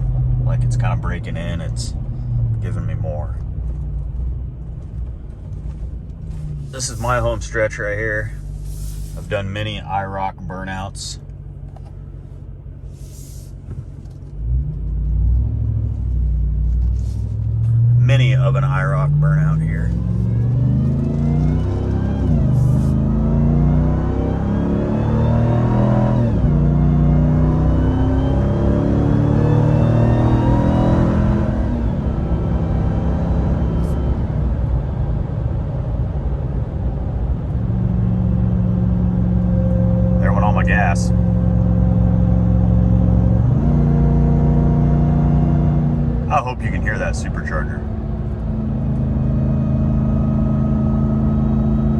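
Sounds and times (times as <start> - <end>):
low road rumble: 0.0 - 51.9
truck engine revving: 6.2 - 10.1, 14.5 - 34.7, 37.2 - 51.9
brief hiss: 8.5 - 9.3, 12.9 - 13.6.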